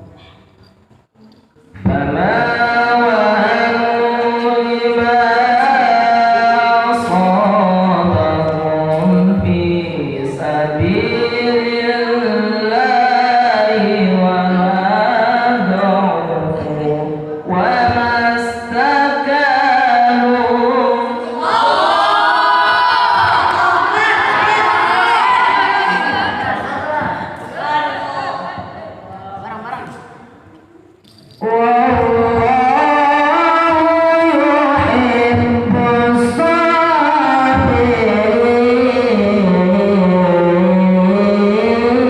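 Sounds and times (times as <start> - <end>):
unaccompanied voices singing: 1.7 - 29.4, 31.4 - 42.0.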